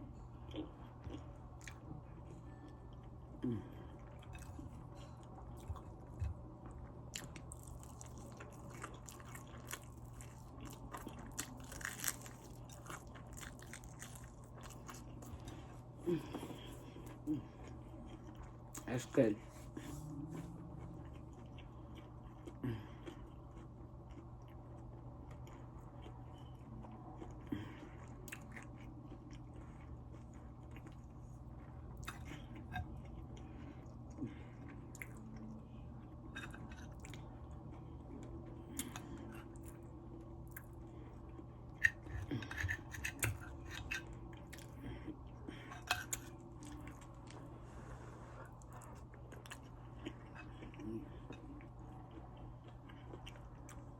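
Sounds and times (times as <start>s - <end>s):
low steady hum: 0.0s - 53.9s
chewing crispy fried chicken: 0.3s - 53.9s.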